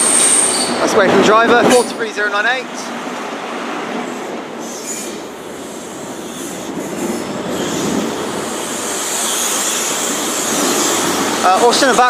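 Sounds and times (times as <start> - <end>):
high wheel squeal: 0.0 - 1.0, 4.6 - 12.0
train coaches rolling on rails: 0.0 - 12.0.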